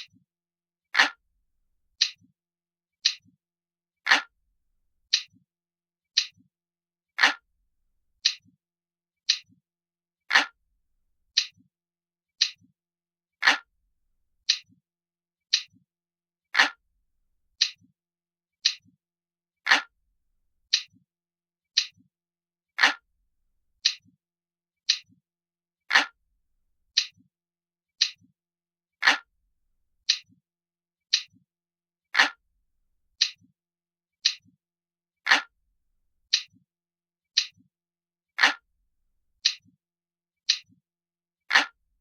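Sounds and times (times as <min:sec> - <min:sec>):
clock ticking: 0:00.0 - 0:00.2.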